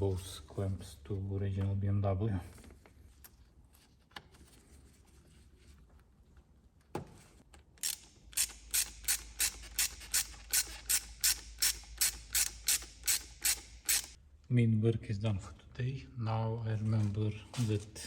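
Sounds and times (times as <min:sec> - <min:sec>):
ratchet tool clicking: 0:07.8 - 0:14.2.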